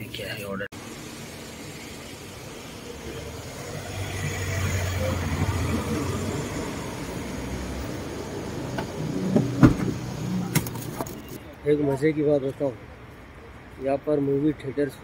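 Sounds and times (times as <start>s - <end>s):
vehicle engine hum: 0.0s - 11.6s.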